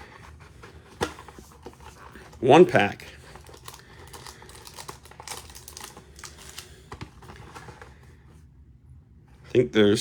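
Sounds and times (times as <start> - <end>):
wrapper crinkling: 1.8 - 6.9.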